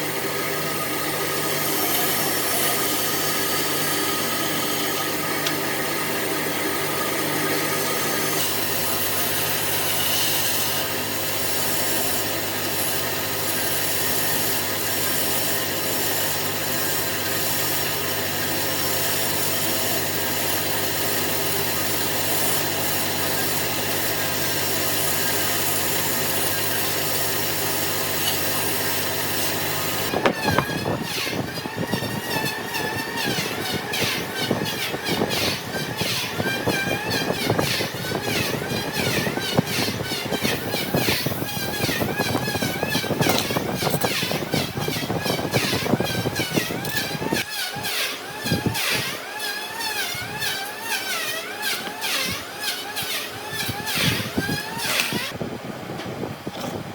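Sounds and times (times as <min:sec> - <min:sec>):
power tool rasping on wood: 0:00.0 - 0:55.4
sharp irregular tool sound: 0:00.0 - 0:55.4.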